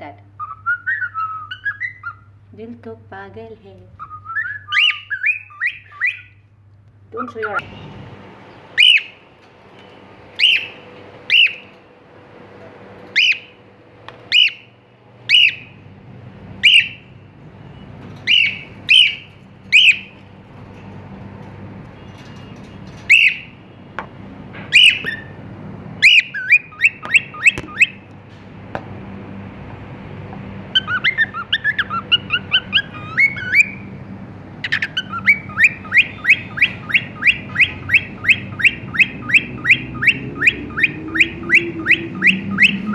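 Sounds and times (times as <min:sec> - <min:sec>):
cockatiel calling and whistling: 0:00.4 - 0:02.3, 0:04.0 - 0:06.4, 0:08.8 - 0:09.2, 0:10.4 - 0:11.8, 0:13.1 - 0:13.5, 0:14.3 - 0:14.7, 0:15.3 - 0:15.7, 0:16.6 - 0:17.0, 0:17.7 - 0:20.1, 0:23.0 - 0:23.5, 0:24.7 - 0:25.4, 0:26.0 - 0:28.0, 0:30.7 - 0:33.9, 0:34.6 - 0:42.9.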